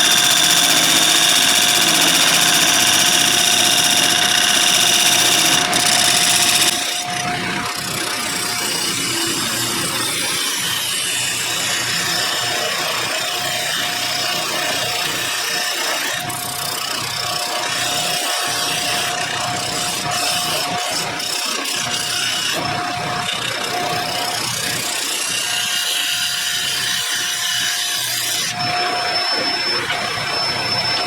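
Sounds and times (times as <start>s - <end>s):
tool scraping spinning wood: 0.0s - 7.2s
lathe motor whine: 0.0s - 31.0s.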